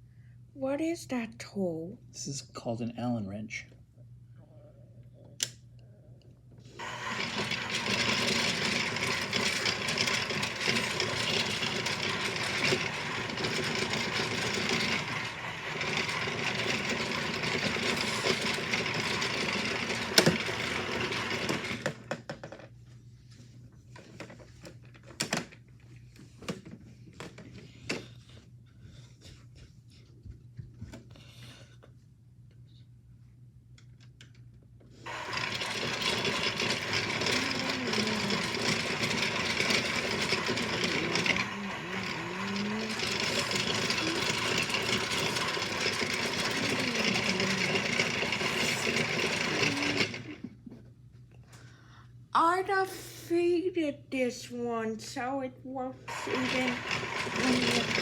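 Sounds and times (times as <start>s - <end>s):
toy washing machine motor: 6.8s - 22.5s, 35.0s - 50.6s, 55.2s - 58.0s
toy clicks and knocks: 35.3s - 41.4s, 42.4s - 50.4s, 56.2s - 58.0s.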